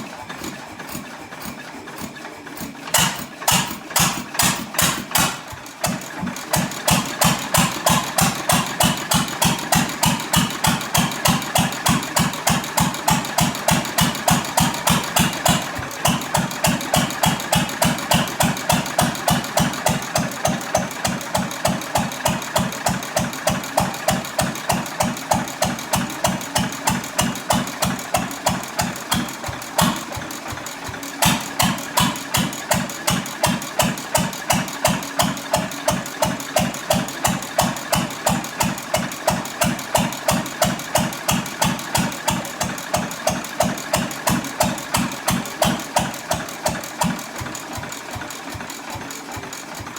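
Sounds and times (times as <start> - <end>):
stationary engine exhaust beating: 0.0 - 49.9.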